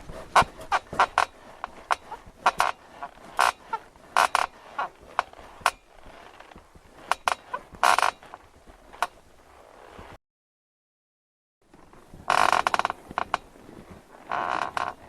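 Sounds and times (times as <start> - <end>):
bed creaking: 0.0 - 10.2, 11.7 - 15.0.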